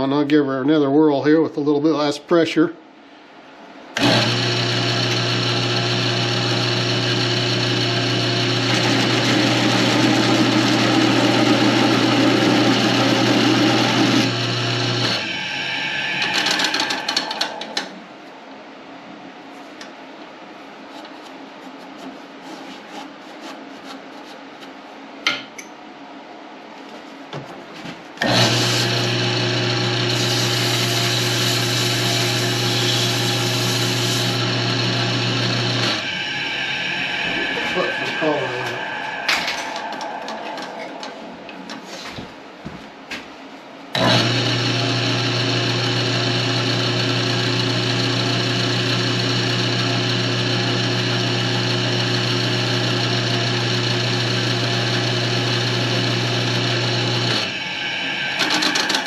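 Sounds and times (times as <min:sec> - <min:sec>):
wood lathe motor hum: 0:04.0 - 0:17.9, 0:28.2 - 0:41.3, 0:44.0 - 0:59.0
tool rubbing on spinning wood: 0:30.1 - 0:42.2, 0:57.2 - 0:59.0.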